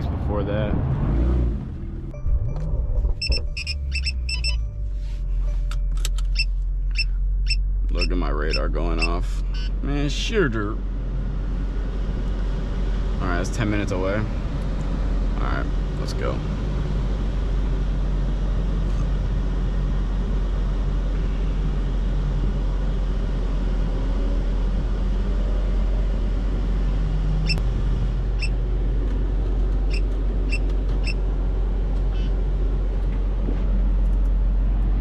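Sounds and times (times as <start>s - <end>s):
car engine running at low revs: 0.0s - 35.0s
short electronic beeps: 2.2s - 4.8s, 6.3s - 9.8s.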